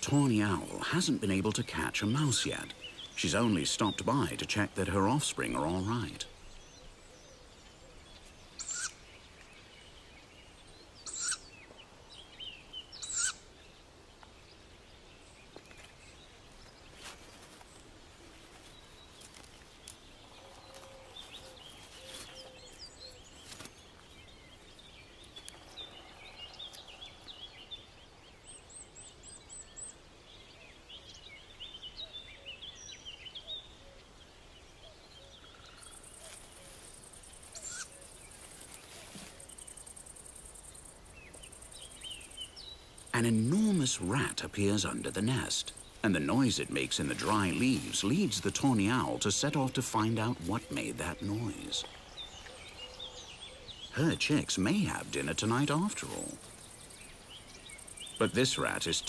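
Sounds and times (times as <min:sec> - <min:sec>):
faint chirping: 0:00.0 - 0:59.0
owl chicks hissing calls: 0:08.6 - 0:09.0, 0:11.0 - 0:11.4, 0:13.0 - 0:13.5, 0:35.6 - 0:43.1.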